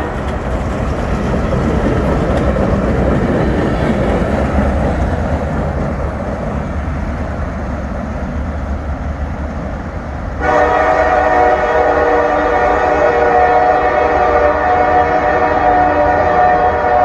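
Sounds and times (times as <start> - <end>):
freight train rumble: 0.0 - 17.0
locomotive air horn blast: 10.4 - 17.0.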